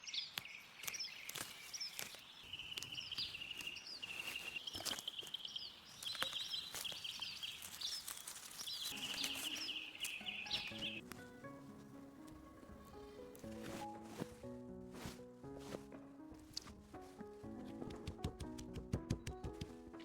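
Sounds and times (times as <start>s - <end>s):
animal chirping: 8.7s - 11.0s.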